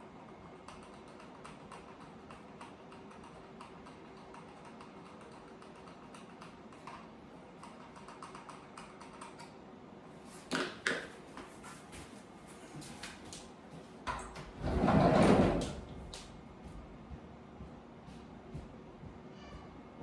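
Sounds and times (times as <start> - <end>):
small clicks and taps: 0.6 - 9.6.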